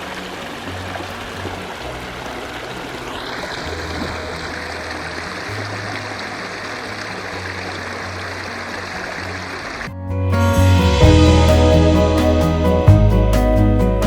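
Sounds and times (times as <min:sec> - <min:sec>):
water running over rocks: 0:00.0 - 0:09.9
soft background music: 0:00.0 - 0:14.0.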